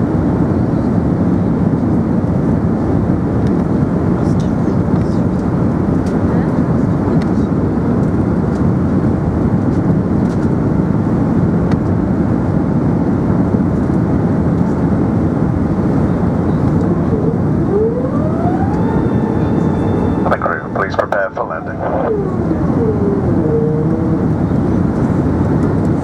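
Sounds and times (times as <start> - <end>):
airplane cabin rumble: 0.0 - 26.0
rising whine: 15.8 - 26.0.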